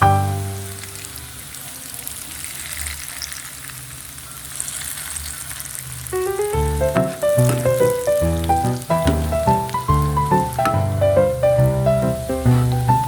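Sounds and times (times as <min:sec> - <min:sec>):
background music: 0:00.0 - 0:00.9, 0:06.2 - 0:13.0
food sizzling in hot oil: 0:00.0 - 0:13.0.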